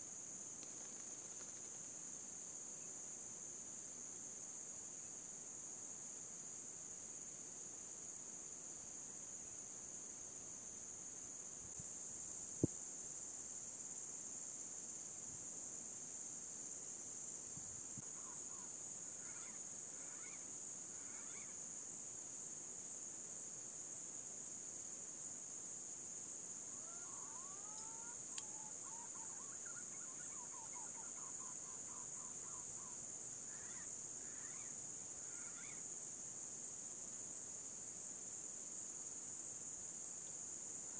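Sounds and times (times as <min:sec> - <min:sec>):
high-pitched insect chorus: 0:00.0 - 0:40.9
faint bird calls: 0:18.1 - 0:21.6, 0:26.8 - 0:35.8.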